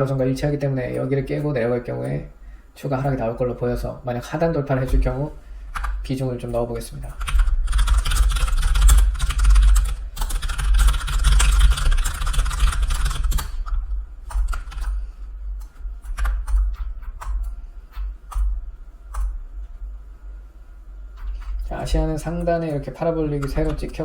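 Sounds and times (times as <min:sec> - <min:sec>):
computer keyboard typing: 0:04.8 - 0:15.0, 0:15.6 - 0:19.4, 0:21.2 - 0:24.0.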